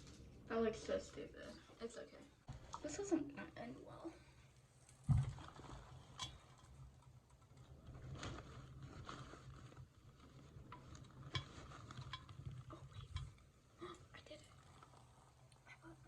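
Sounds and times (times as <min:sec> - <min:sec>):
light taps and rustling: 0:04.9 - 0:13.6.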